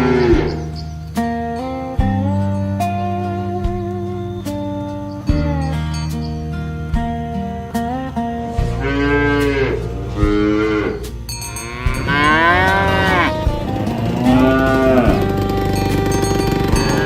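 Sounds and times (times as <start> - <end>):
cows mooing: 0.0 - 0.9, 8.3 - 17.0
soft guitar music: 0.0 - 17.0.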